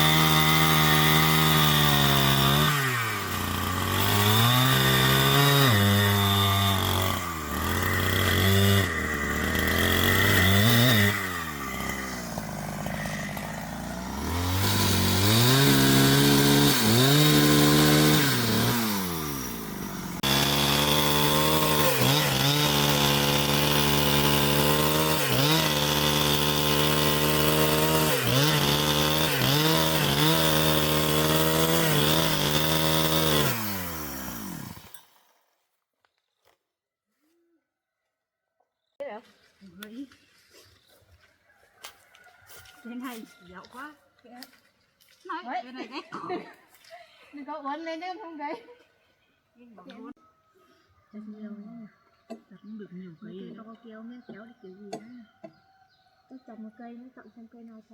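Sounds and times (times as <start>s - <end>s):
chainsaw running: 0.0s - 35.4s.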